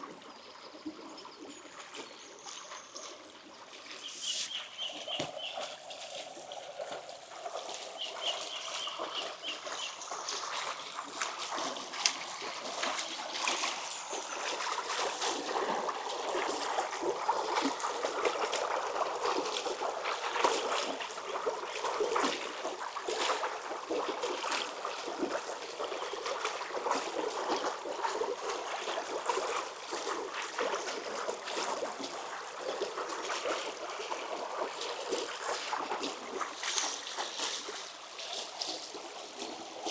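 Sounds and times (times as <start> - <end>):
stream splashing over stones: 3.7 - 39.9
bird chirping: 4.0 - 5.7.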